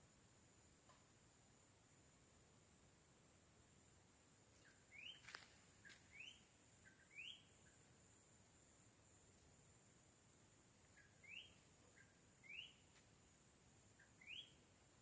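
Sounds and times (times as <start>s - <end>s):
bird calling faintly: 4.5s - 7.9s, 10.8s - 13.2s, 13.9s - 14.7s.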